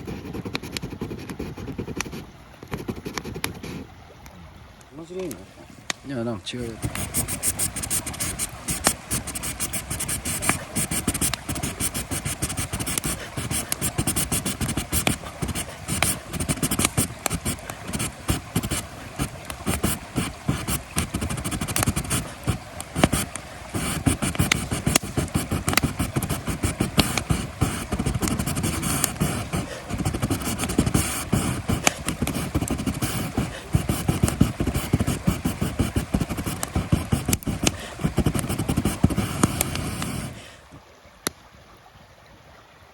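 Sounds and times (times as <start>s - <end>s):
campfire crackling and popping: 0.4s - 40.4s.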